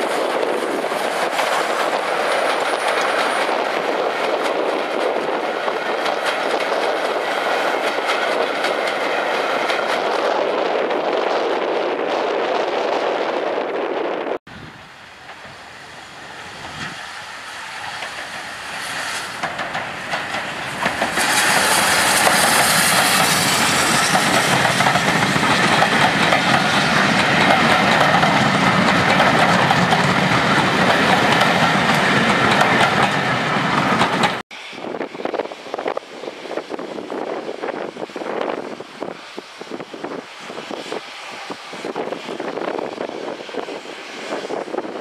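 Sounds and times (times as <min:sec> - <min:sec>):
train wheels clattering over rail joints: 0:00.0 - 0:10.5, 0:16.8 - 0:34.4.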